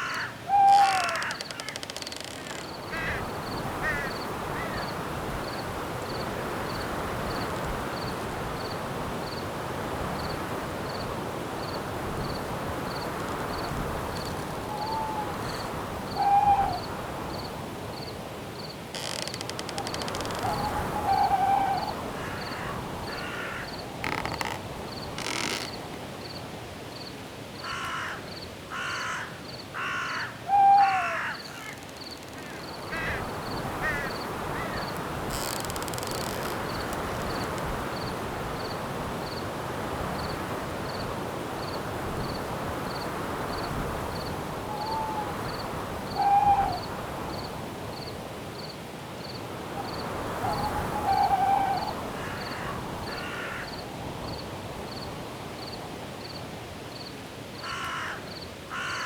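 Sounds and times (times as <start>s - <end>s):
harsh rasping bird calls: 0.0s - 3.2s, 19.0s - 24.6s, 29.8s - 37.5s
crickets chirping: 0.0s - 59.0s
wind in the trees: 0.0s - 59.0s.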